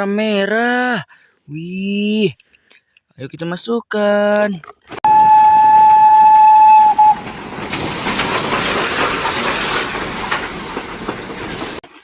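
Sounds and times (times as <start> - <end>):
steam locomotive whistle: 5.0 - 7.4
steam hissing: 5.2 - 11.8.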